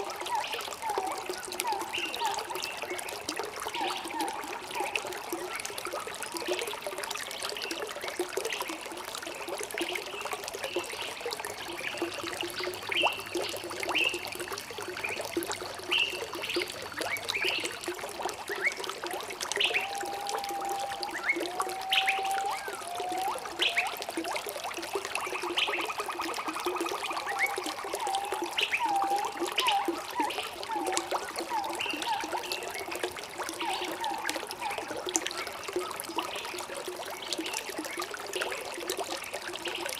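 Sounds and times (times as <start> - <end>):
stream water trickling: 0.0 - 39.9
birds chirping: 19.6 - 24.0.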